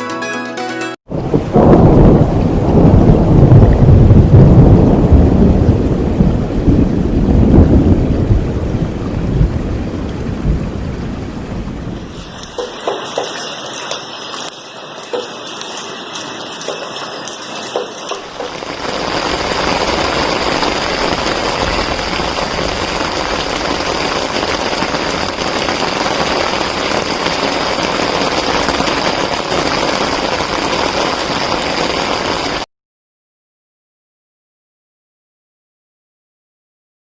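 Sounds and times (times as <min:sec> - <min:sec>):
rain falling: 0:01.1 - 0:32.7
raindrops ticking: 0:12.1 - 0:32.6.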